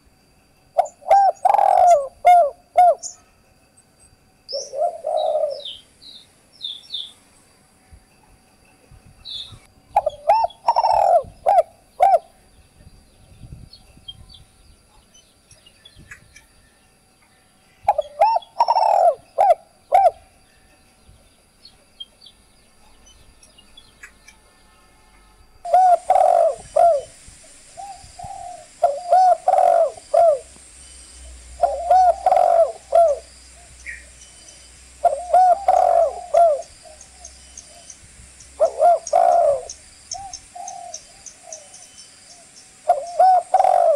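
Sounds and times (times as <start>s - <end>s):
dove cooing: 0.8s - 3.2s, 4.5s - 5.8s, 9.5s - 12.4s, 17.8s - 20.4s, 25.7s - 30.6s, 31.3s - 38.0s, 38.6s - 43.9s
small birds chirping: 4.5s - 7.3s, 17.2s - 24.4s, 25.7s - 43.9s.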